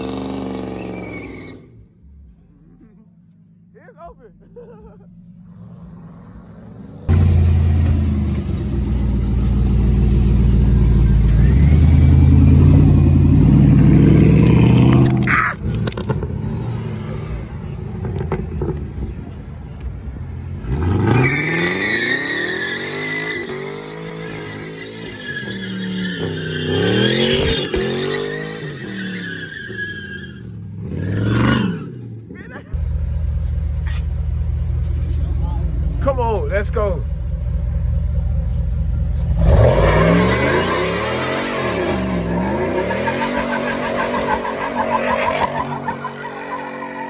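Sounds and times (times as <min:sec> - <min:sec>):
vehicle engine revving: 0:00.0 - 0:03.7, 0:04.5 - 0:19.2, 0:30.3 - 0:47.0.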